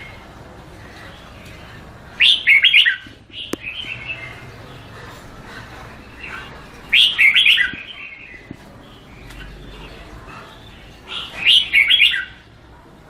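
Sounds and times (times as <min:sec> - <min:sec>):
bird singing whistled notes: 0:11.1 - 0:12.4.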